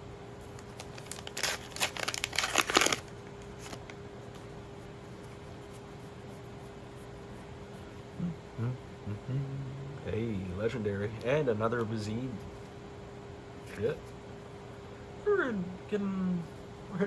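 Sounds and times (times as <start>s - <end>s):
foil wrapper tearing and crinkling: 0.6s - 3.9s.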